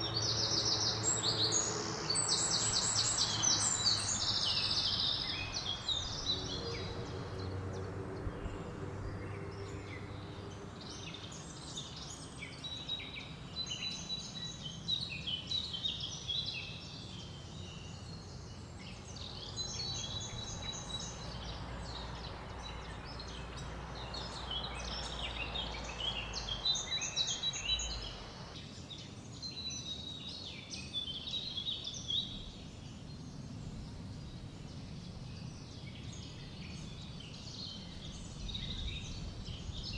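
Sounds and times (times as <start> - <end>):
songbirds chirping and singing: 0.0 - 29.7
wind through leaves: 0.0 - 39.9
low rumble: 20.1 - 28.6.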